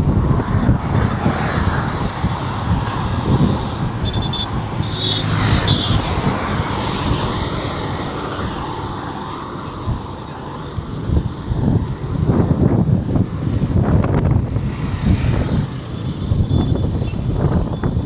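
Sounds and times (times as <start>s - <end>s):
highway traffic rumble: 0.0s - 18.0s.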